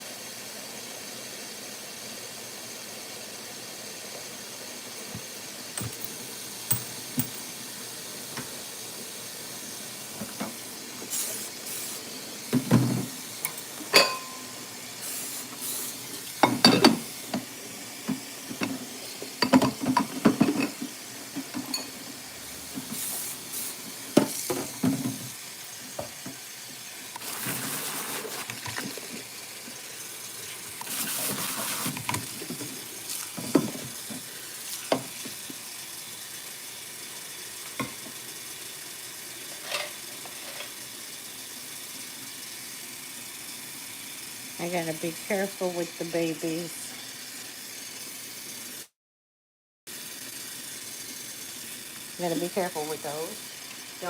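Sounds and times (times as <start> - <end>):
dishes and cutlery clinking: 12.9 - 14.6, 16.4 - 17.1, 19.4 - 20.8, 21.4 - 22.0.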